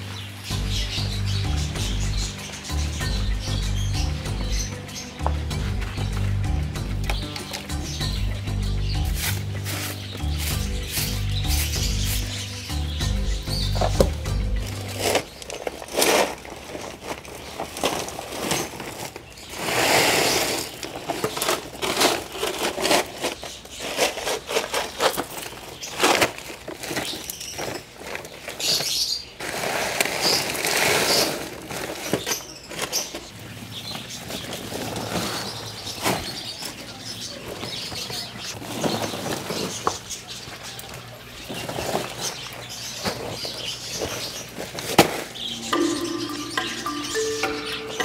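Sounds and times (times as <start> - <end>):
small birds chirping: 0.0 - 48.0
clicks and rustles: 14.7 - 33.4.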